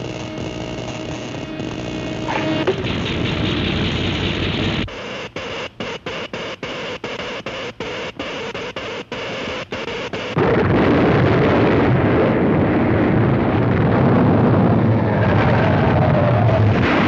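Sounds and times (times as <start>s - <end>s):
humming tone: 0.0s - 5.0s
cartoon earthquake rumble: 10.4s - 17.0s.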